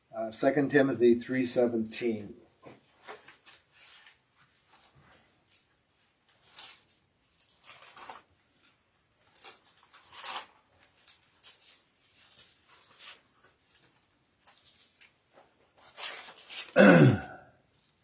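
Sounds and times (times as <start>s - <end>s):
pages being turned: 2.7s - 16.8s.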